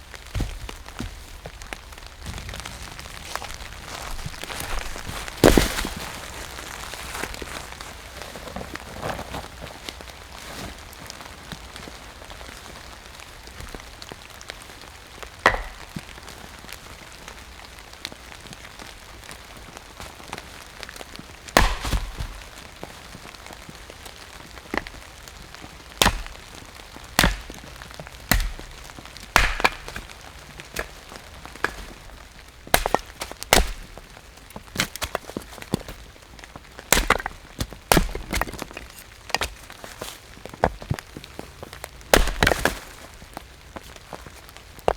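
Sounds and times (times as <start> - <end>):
firewood being chopped: 0.3 - 7.8, 15.4 - 16.3, 18.6 - 44.3.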